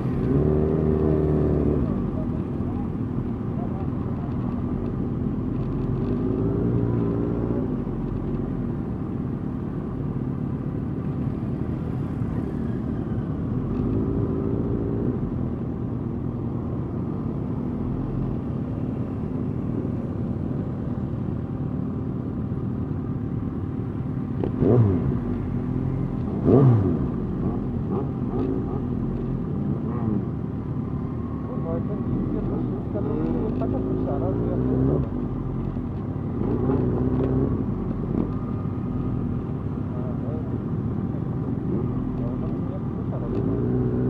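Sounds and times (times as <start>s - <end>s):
motorcycle engines running: 0.0s - 44.0s
motorcycle engine revving: 24.3s - 29.2s.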